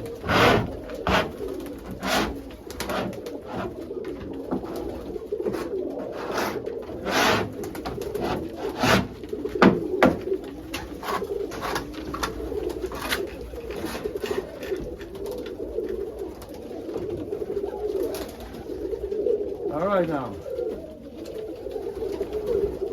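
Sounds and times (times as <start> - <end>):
sharp knocks and scrapes: 0.0 - 14.9
pigeons cooing: 0.0 - 22.9.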